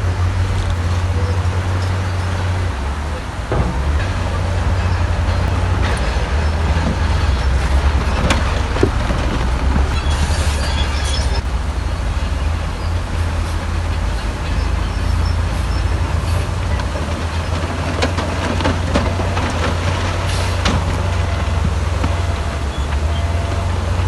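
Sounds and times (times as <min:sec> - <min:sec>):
bulldozer diesel engine rumbling: 0:00.0 - 0:24.0
high squeal: 0:09.9 - 0:11.5.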